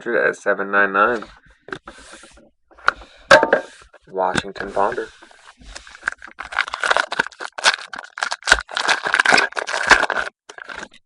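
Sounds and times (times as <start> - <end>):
cards rustling: 3.7 - 11.0
foil wrapper crinkling: 4.7 - 11.0.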